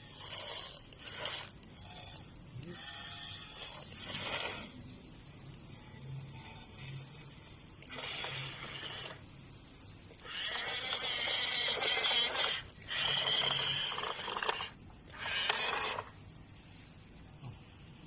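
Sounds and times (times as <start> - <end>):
small electric motor whining: 0.0 - 4.8, 5.7 - 9.2, 10.2 - 16.2.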